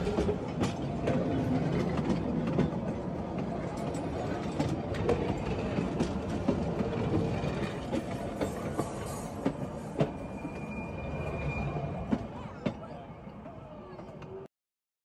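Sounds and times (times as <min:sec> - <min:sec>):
clacks and knocks: 0:00.0 - 0:10.2
train wheels rumbling: 0:00.0 - 0:14.4.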